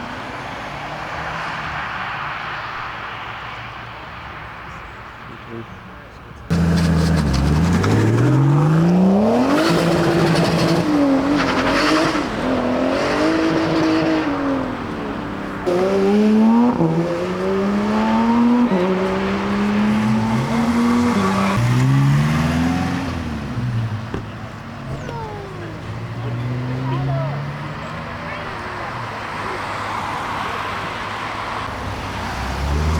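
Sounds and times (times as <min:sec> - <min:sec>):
car engines revving high: 0:06.5 - 0:32.9.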